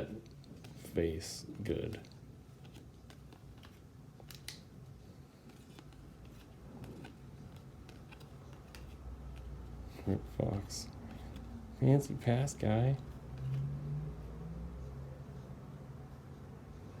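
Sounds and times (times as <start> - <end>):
low room hum: 0.0 - 17.0
trading cards being flipped: 1.8 - 9.8, 13.3 - 13.7.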